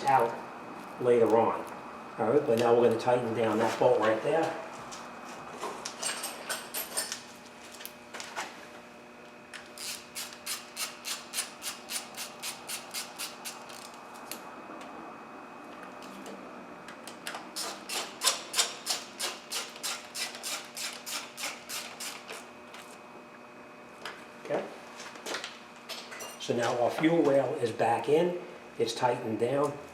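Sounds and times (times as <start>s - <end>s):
hand ratchet clicking: 9.8s - 13.9s.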